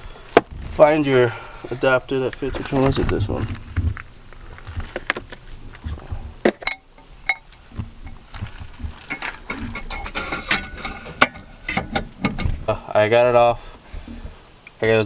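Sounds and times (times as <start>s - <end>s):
metal tools clinking: 6.6s - 8.3s, 9.0s - 12.6s
soft metal scraping: 6.9s - 12.6s.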